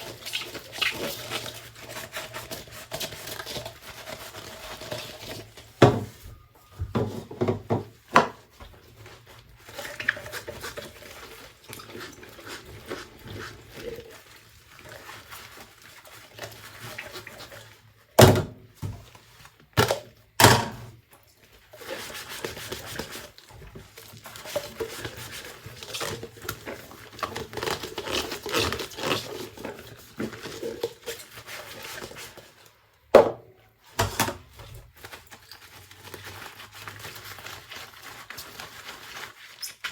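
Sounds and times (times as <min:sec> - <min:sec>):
dishes being scrubbed: 0:00.0 - 0:17.9, 0:21.7 - 0:32.8
dishes knocking: 0:05.8 - 0:06.2, 0:06.8 - 0:08.4.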